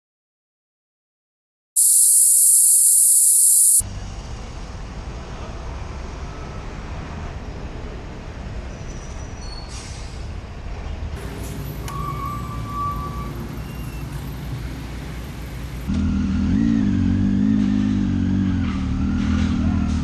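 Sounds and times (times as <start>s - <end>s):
loud high hiss: 1.8s - 3.8s.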